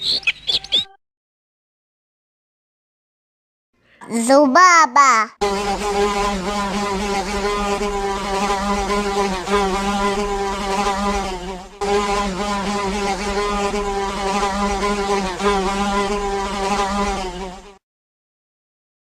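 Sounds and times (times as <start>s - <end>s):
fly buzzing: 5.4s - 17.8s.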